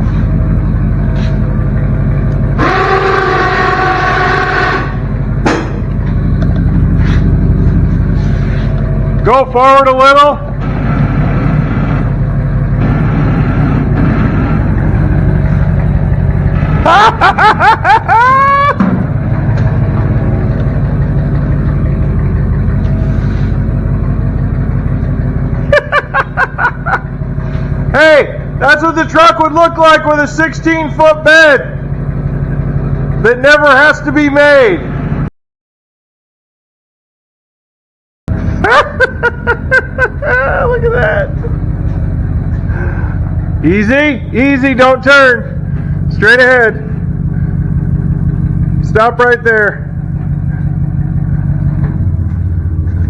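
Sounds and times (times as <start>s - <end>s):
truck engine running under load: 0.0s - 35.3s, 38.3s - 53.0s
horn-like tone: 2.5s - 5.4s.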